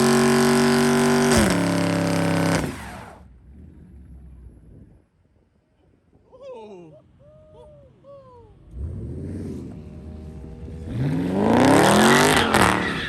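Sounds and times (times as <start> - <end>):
car engine revving: 0.0 - 4.4, 8.6 - 13.0.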